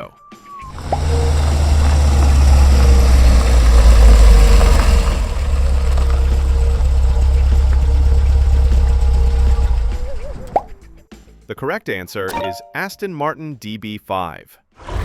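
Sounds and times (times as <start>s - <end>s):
car engine idling: 0.7s - 10.4s.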